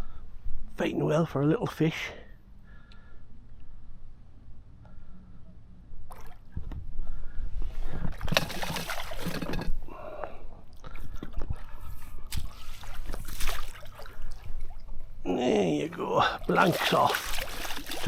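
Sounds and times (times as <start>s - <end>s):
fish splashing in water: 8.2s - 9.5s, 12.3s - 14.8s, 16.4s - 18.0s.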